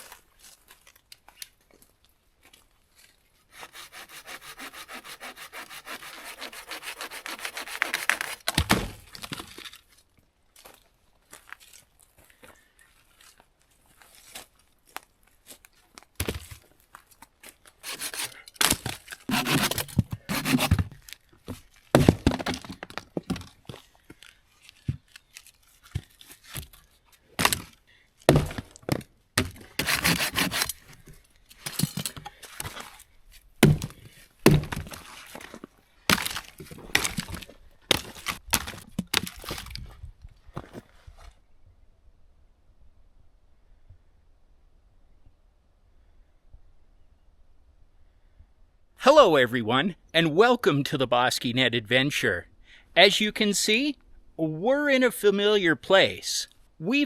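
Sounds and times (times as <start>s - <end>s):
crunching and dull thuds: 17.8s - 23.9s, 27.4s - 33.0s, 33.6s - 40.9s
sticks cracking and snapping: 36.1s - 39.8s.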